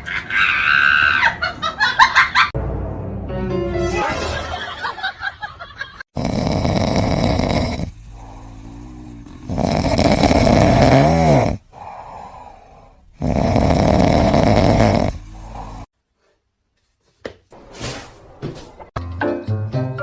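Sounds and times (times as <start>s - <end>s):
pet snoring: 6.1s - 15.9s.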